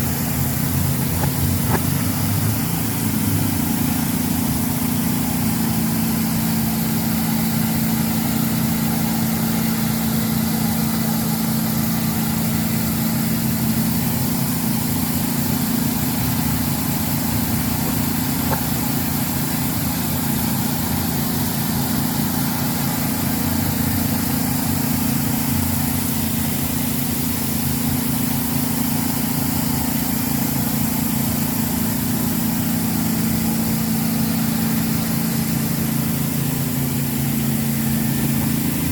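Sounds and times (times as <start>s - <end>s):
engine humming: 0.0s - 9.2s, 13.5s - 21.6s.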